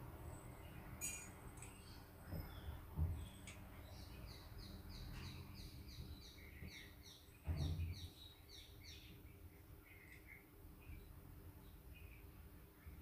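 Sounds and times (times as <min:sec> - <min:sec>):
small bird chirping: 0:00.3 - 0:13.0.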